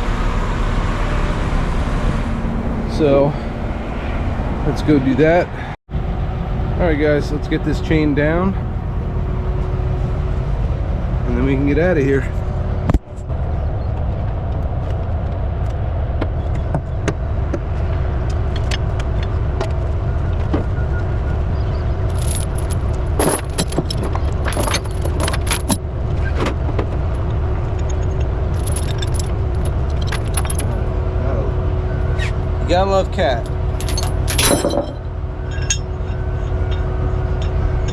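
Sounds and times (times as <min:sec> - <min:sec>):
truck engine idling: 0:00.0 - 0:14.5, 0:15.4 - 0:37.9
metal chain clinking: 0:22.1 - 0:25.8, 0:27.8 - 0:30.8, 0:33.3 - 0:37.9.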